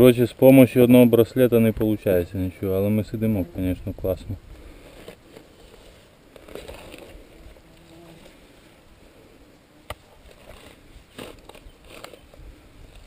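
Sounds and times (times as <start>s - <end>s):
rustling: 3.1s - 13.0s.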